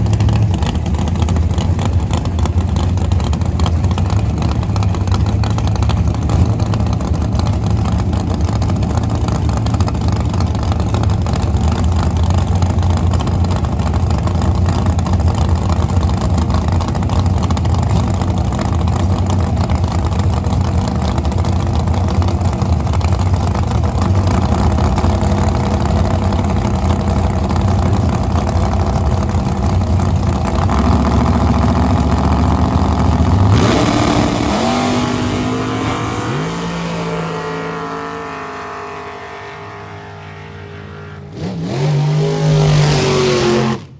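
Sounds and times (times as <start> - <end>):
race car engine idling and revving: 0.0 - 43.9.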